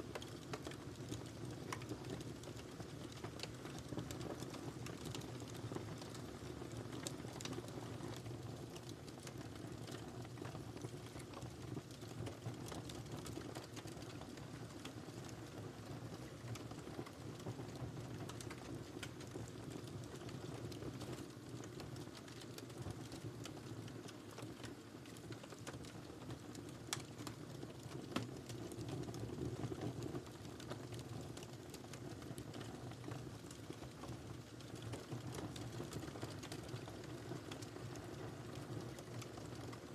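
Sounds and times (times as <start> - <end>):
fire crackling and popping: 0.0 - 39.9
fire flames rumbling: 26.6 - 39.9.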